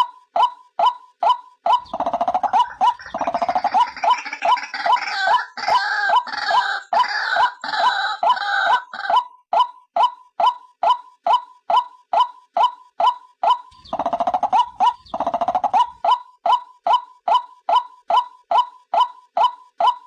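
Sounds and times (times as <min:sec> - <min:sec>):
harsh rapid croaking chorus: 0:01.8 - 0:09.2, 0:13.7 - 0:16.0.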